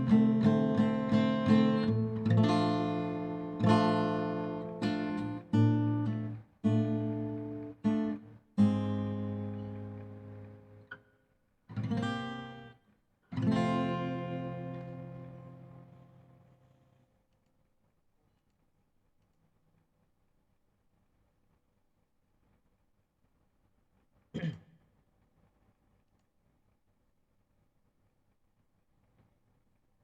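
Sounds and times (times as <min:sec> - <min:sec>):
acoustic guitar strumming chords: 0:00.0 - 0:10.8, 0:13.4 - 0:16.2.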